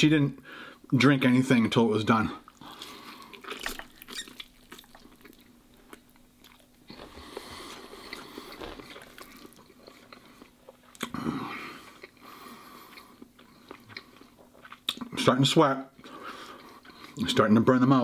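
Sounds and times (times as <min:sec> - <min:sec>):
man chewing noodles: 0:02.4 - 0:15.2, 0:16.0 - 0:17.2.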